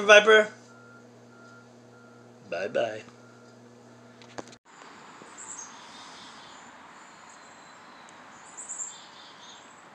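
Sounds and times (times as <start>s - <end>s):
outdoor background hiss: 4.7s - 9.9s.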